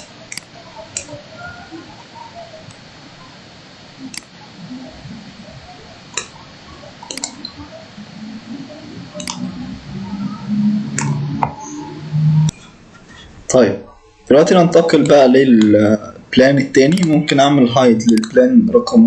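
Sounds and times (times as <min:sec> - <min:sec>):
computer mouse clicking: 0:00.0 - 0:01.2, 0:04.1 - 0:04.3, 0:07.0 - 0:07.6, 0:09.2 - 0:09.5, 0:16.7 - 0:17.2, 0:18.0 - 0:18.4.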